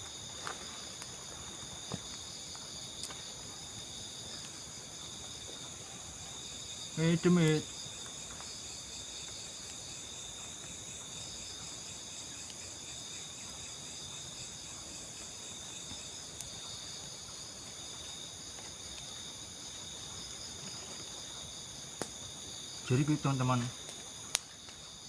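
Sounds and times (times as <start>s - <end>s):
crickets and insects trilling: 0.0s - 25.0s.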